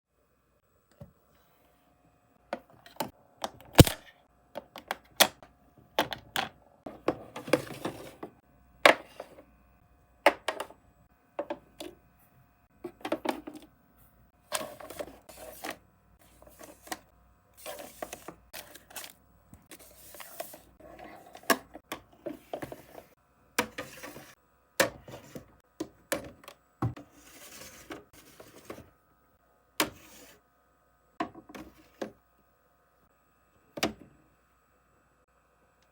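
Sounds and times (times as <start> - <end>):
rustling of items handled: 14.5 - 23.2.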